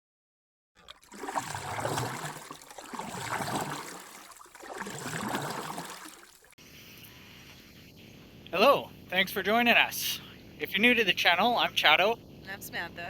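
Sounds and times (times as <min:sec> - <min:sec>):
moving water: 0:00.8 - 0:06.6.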